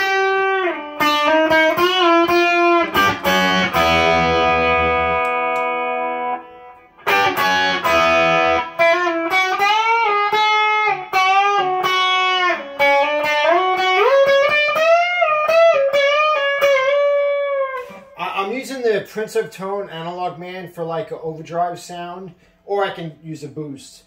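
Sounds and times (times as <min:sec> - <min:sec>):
electric guitar chords: 0:00.0 - 0:18.2
electric guitar lead line: 0:00.0 - 0:18.2.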